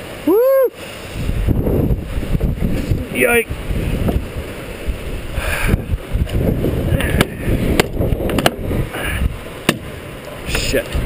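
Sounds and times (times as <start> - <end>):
wind buffeting microphone: 1.1 - 11.0
sharp clicks or knocks: 7.2 - 8.6.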